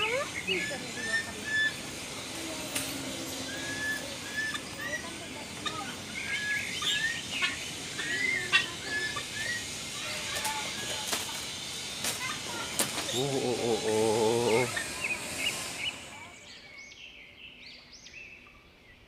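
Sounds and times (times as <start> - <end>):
birds chirping and whistling: 0.0 - 19.0.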